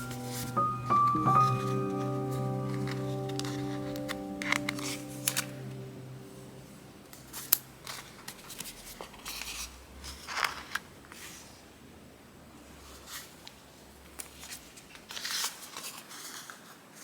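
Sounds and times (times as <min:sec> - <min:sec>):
paper rustling: 0:00.0 - 0:06.3, 0:14.2 - 0:17.0
background music: 0:00.0 - 0:07.2.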